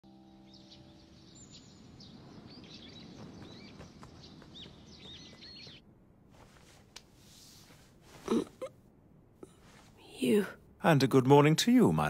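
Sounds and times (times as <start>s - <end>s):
small birds chirping: 0.2s - 6.0s.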